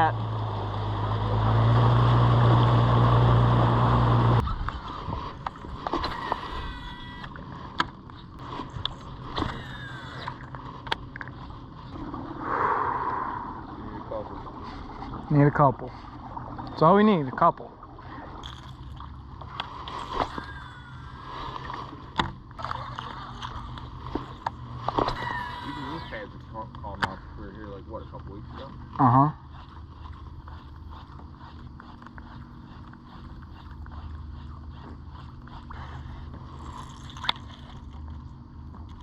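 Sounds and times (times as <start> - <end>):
boat motor running: 0.0 - 12.6, 13.3 - 39.0
steady low hum: 0.0 - 39.0
wind rush: 12.0 - 14.6.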